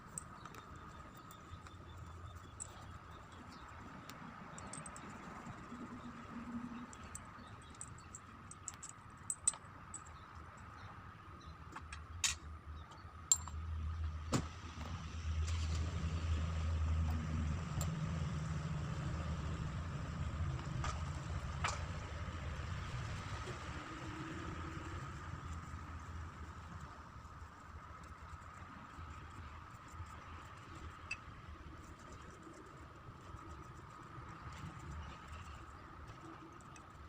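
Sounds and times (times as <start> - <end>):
low engine rumble: 14.7 - 37.0.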